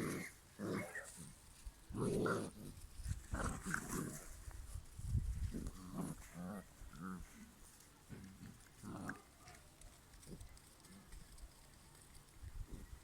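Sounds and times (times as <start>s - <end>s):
puppies growling and grunting: 0.0s - 1.3s, 1.9s - 4.4s, 5.5s - 7.5s, 8.1s - 9.4s.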